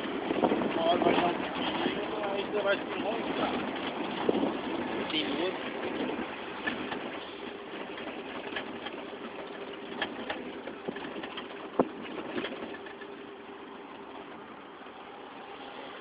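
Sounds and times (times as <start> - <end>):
diesel truck engine hum: 0.0 - 16.0
light clicks and rattles: 5.1 - 13.2.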